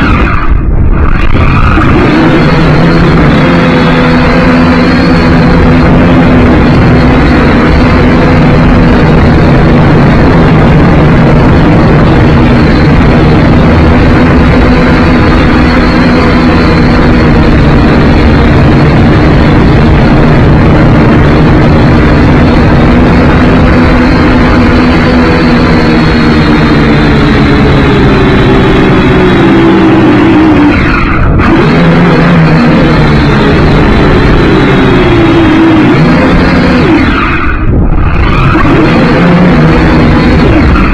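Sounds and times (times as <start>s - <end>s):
drone motors buzzing: 0.0s - 40.9s.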